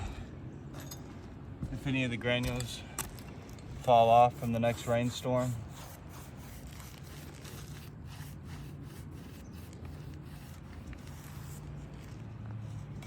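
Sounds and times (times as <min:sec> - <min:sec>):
brush scrubbing roof shingle: 0:03.7 - 0:13.0.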